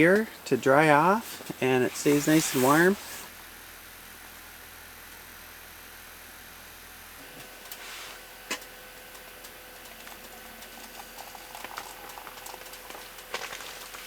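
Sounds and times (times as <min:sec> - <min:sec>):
sizzling and crackling on stove: 0:00.0 - 0:03.3, 0:07.2 - 0:14.0.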